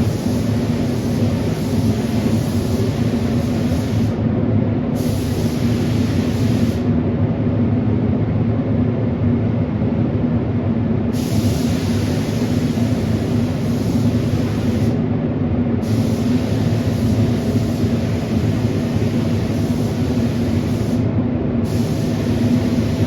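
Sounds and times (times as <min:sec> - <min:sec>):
paint spray gun hissing: 0:00.0 - 0:04.2, 0:05.0 - 0:06.9, 0:11.2 - 0:15.0, 0:15.8 - 0:23.0
low machine drone: 0:00.0 - 0:23.0.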